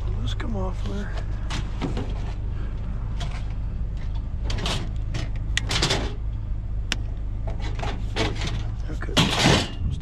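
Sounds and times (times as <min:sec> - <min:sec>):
vehicle engine idling: 0:00.0 - 0:10.0
clattering knocks and rattles: 0:03.2 - 0:06.2, 0:07.4 - 0:10.0.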